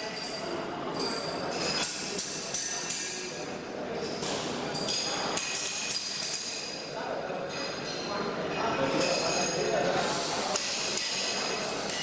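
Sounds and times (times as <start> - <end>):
metal clinks with ringing: 0.0 - 3.0.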